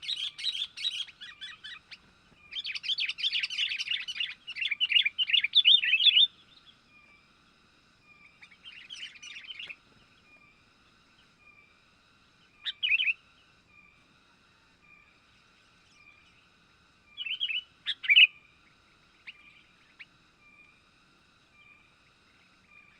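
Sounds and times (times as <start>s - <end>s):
bird chattering chirps: 0.0s - 6.4s, 12.6s - 13.2s, 17.2s - 18.3s
faint repeating bird call: 0.0s - 20.9s.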